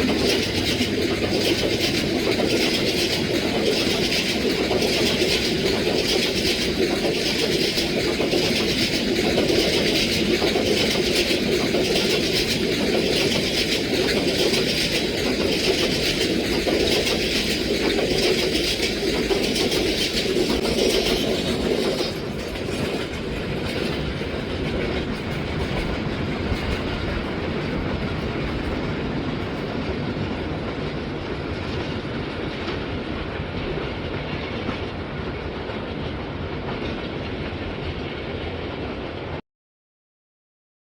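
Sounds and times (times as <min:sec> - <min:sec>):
wheels clattering over rail joints: 0:00.0 - 0:30.6
train coach rumbling: 0:00.0 - 0:39.4.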